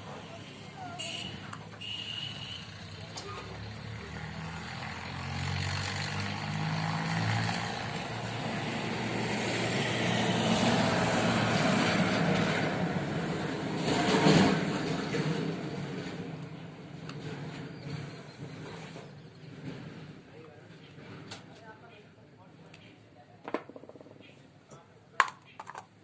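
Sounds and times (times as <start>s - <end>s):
vehicle engine humming: 0.0s - 20.3s.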